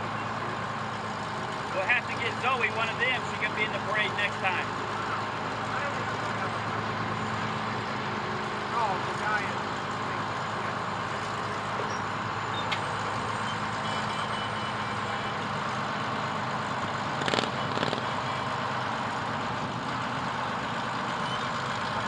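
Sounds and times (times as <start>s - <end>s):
fire truck engine drone: 0.0s - 22.0s
short bursts of noise: 17.2s - 18.0s.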